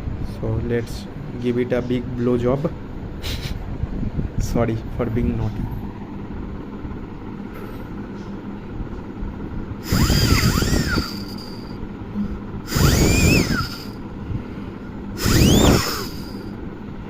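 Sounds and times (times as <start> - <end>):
breath blown through flow sensor: 9.8 - 16.5.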